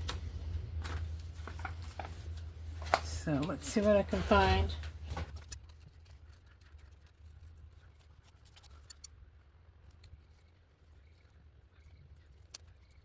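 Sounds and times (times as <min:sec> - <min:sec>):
low steady hum: 0:00.0 - 0:13.0
paper rustling and clicks: 0:00.8 - 0:07.2.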